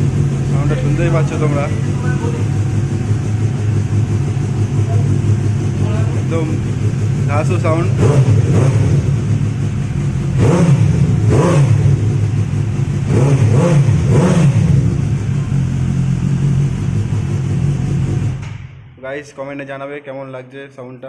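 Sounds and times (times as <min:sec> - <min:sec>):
motorcycle engine idling and revving: 0:00.0 - 0:18.9.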